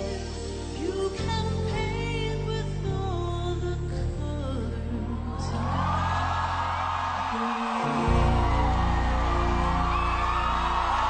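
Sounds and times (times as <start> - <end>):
sustained low chords: 7.9 - 11.0.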